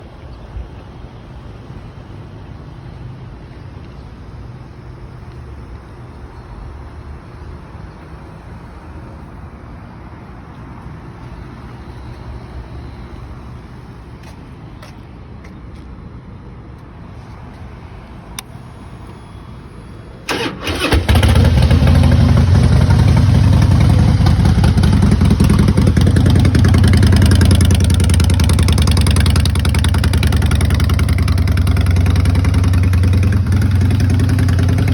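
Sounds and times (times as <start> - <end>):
motorcycle engine starting and idling: 18.3 - 34.9.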